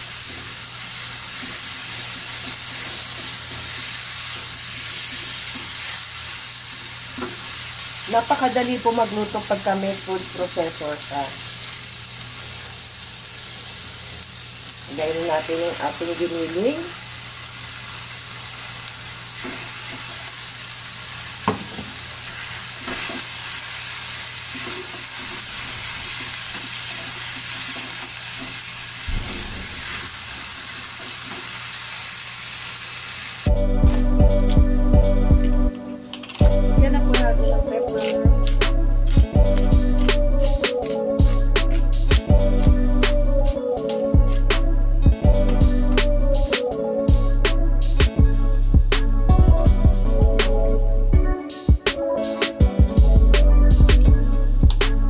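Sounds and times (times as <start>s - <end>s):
vegetables frying in oil: 0.0s - 33.5s.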